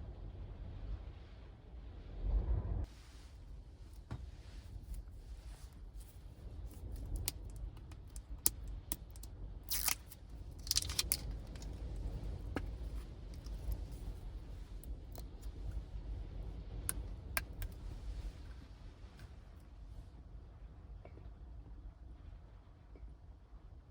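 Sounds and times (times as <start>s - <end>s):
steady low rumble: 0.0s - 23.9s
objects clicking and rustling: 6.7s - 14.1s.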